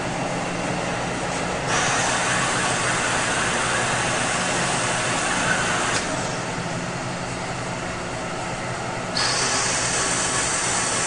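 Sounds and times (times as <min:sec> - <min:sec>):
drilling machine motor hum: 0:01.7 - 0:06.5, 0:09.1 - 0:11.0.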